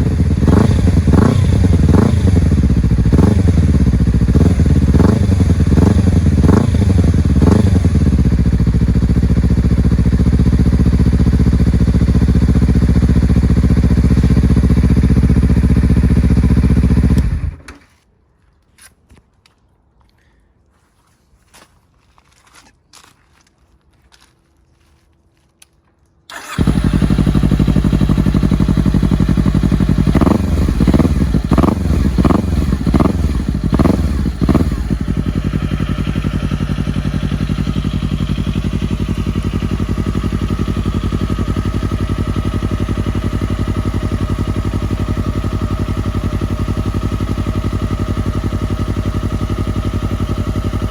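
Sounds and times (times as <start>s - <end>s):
motorcycle starting revving and idling: 0.0s - 17.7s, 26.3s - 50.9s.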